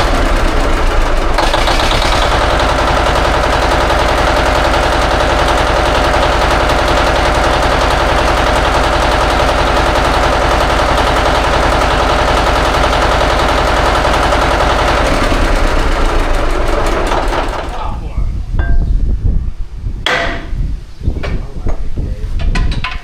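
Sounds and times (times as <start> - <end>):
engine running: 0.0 - 18.1.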